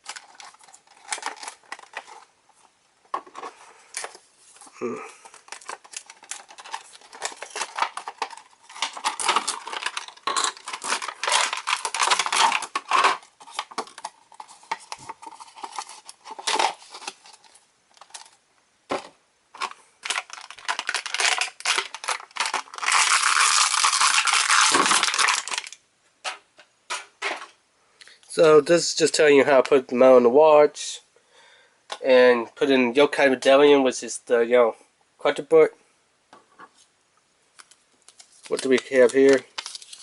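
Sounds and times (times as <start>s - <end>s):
paper and plastic crinkling: 0.0s - 25.8s, 37.5s - 40.0s
tape and cardboard tearing: 20.8s - 25.7s.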